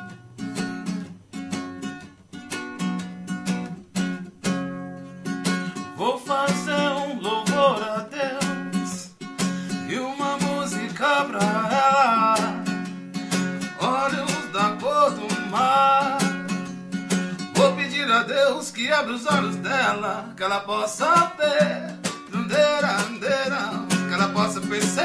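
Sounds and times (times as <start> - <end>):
acoustic guitar strumming reggae: 0.0 - 25.0
man singing wordless melody: 5.8 - 16.7, 17.3 - 25.0.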